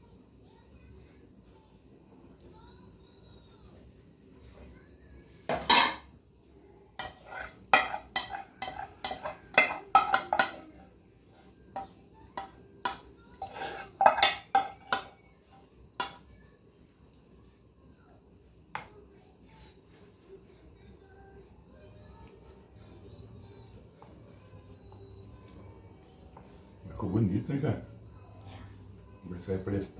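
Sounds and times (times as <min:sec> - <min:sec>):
spoon clinking on cookware: 0:05.5 - 0:06.1, 0:07.0 - 0:10.8, 0:11.8 - 0:15.2.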